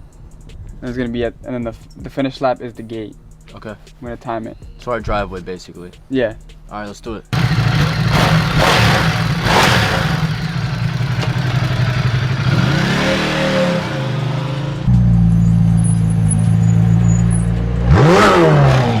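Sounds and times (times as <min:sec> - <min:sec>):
vehicle engine revving: 0:07.4 - 0:19.0.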